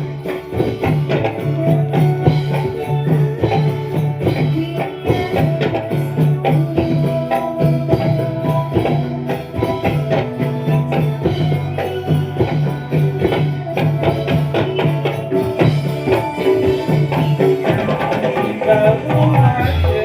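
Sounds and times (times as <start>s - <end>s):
drums and tambourine beat: 0.0s - 20.0s
sustained pitched tones: 5.8s - 20.0s.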